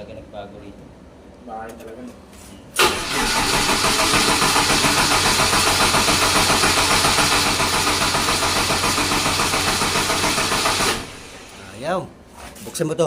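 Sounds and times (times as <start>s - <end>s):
starter cranking generator engine: 2.8s - 11.6s.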